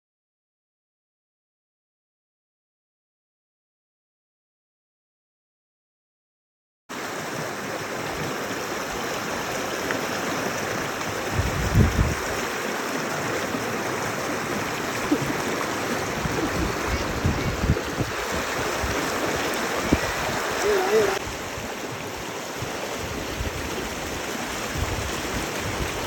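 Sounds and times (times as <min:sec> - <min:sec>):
running water rushing: 0:06.9 - 0:26.0.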